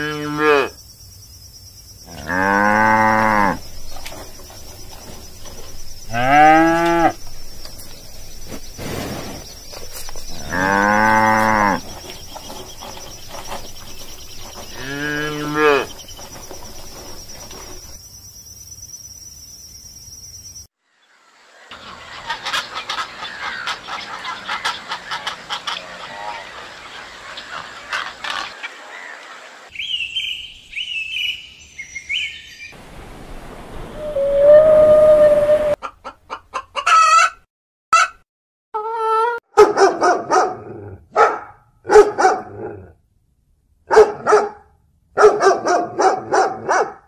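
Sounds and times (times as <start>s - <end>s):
cows mooing: 2.1s - 3.8s, 6.1s - 7.5s, 10.3s - 13.0s, 14.5s - 16.1s
jumble of clicks and calls: 21.8s - 29.4s.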